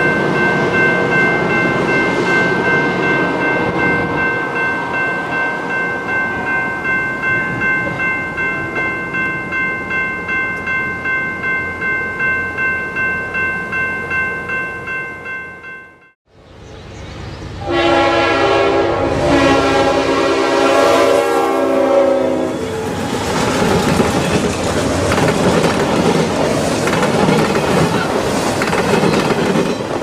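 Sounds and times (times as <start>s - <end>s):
train rumbling past: 0.0s - 9.6s, 16.3s - 30.0s
locomotive air horn: 17.6s - 23.0s
wheels clicking over rail joints: 23.0s - 30.0s.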